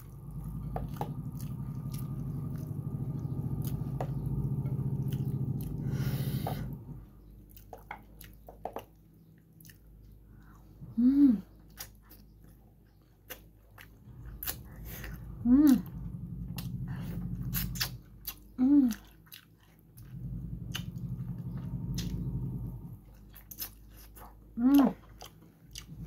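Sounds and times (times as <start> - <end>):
person chewing: 0.0 - 6.4, 7.2 - 10.6, 11.6 - 15.8, 16.6 - 21.0, 23.0 - 26.0
low steady hum: 0.0 - 8.5, 9.2 - 26.0
wet mouth clicks: 17.5 - 19.0.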